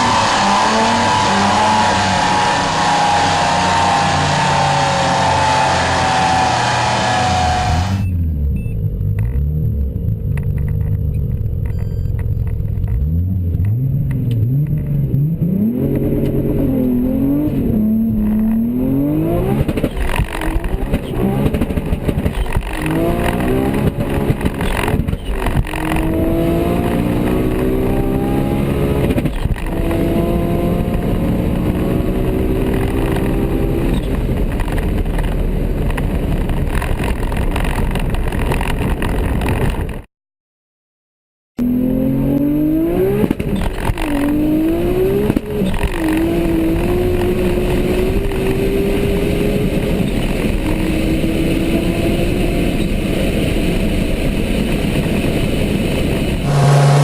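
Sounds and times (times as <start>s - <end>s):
car engine revving and accelerating: 0.0s - 8.1s, 12.9s - 34.5s, 41.6s - 54.3s, 56.3s - 57.0s.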